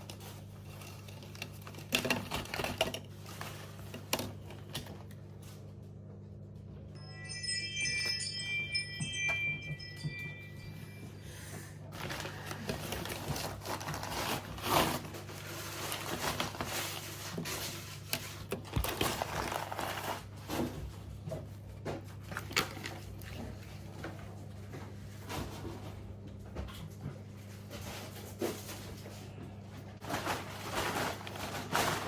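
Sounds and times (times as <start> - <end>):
packaging rustling: 12.0 - 20.7, 30.0 - 32.0.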